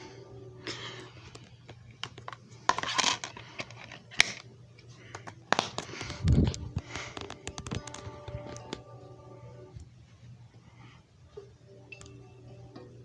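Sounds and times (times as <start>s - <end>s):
objects clicking and tapping: 1.3s - 4.5s, 5.1s - 8.8s.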